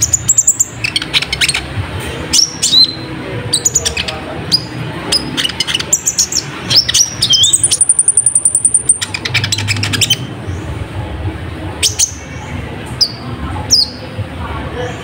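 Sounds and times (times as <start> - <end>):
sunbird singing chirps and trills: 0.0 - 1.7, 2.3 - 11.0.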